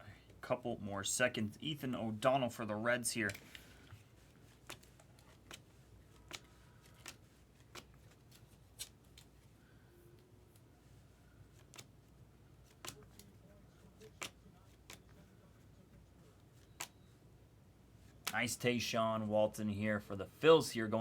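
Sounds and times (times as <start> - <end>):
trading cards clicking: 4.6 - 9.3, 12.7 - 13.3, 14.0 - 15.2, 16.6 - 17.0.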